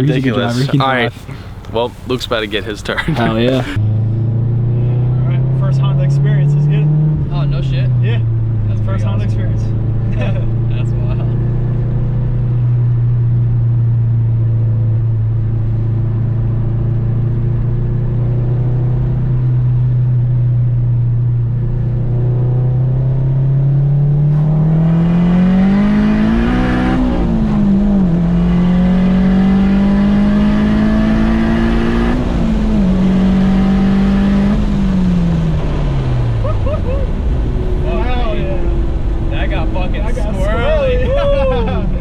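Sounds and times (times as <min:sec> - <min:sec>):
car engine revving: 0:00.0 - 0:14.5, 0:21.6 - 0:41.1.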